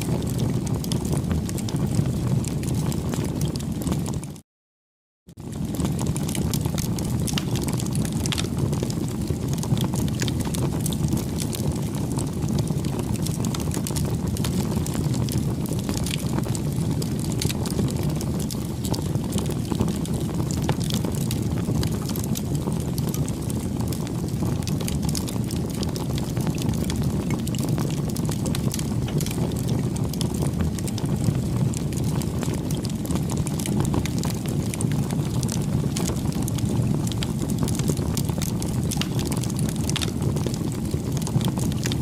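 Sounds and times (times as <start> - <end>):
bonfire flames rushing: 0.0 - 4.4, 5.4 - 42.0
burning wood crackling and popping: 0.0 - 4.4, 5.4 - 42.0.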